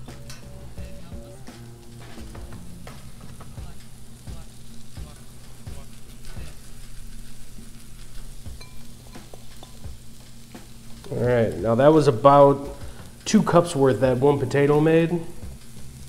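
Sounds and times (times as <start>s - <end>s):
potato sizzling on a griddle: 0.0s - 16.0s
small crackles: 1.5s - 16.0s.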